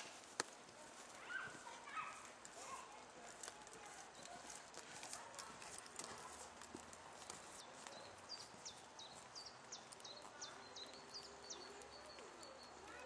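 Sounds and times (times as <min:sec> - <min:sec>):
small bird chirping: 0:07.2 - 0:13.0.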